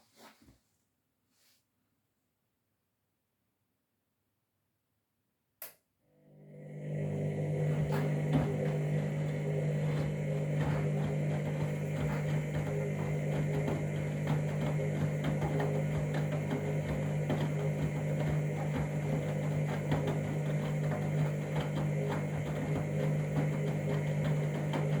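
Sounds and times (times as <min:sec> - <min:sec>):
washing machine hum and rushing: 0:06.4 - 0:25.0.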